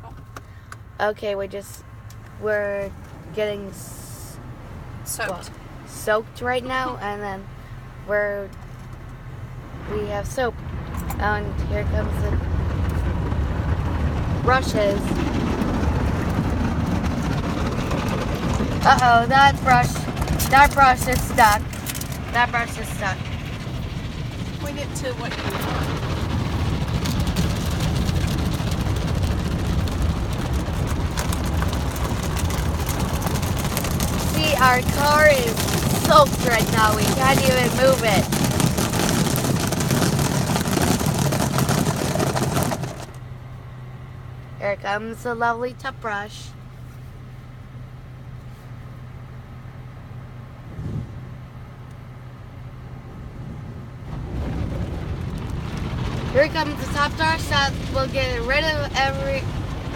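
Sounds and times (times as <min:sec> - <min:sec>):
car wash low rumble: 0:00.0 - 0:59.9
water spray and brushes on car: 0:14.4 - 0:43.2, 0:56.4 - 0:59.9.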